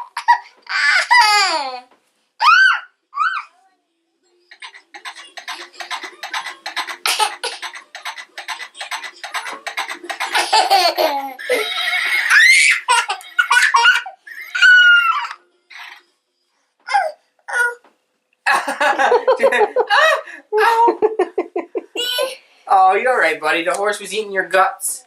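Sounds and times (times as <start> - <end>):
child laughing: 0.0 - 3.5, 4.5 - 15.4, 19.1 - 22.4
child squealing: 2.4 - 3.6, 11.4 - 12.9, 14.3 - 15.4.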